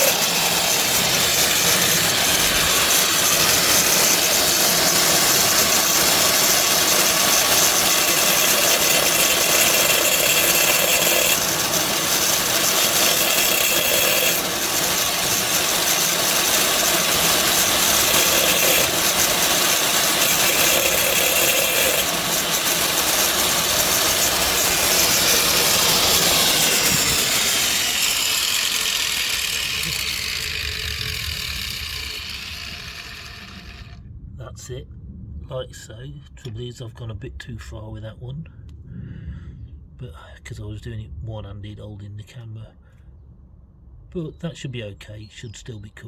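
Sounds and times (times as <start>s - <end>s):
angle grinder cutting tile: 0.0s - 34.0s.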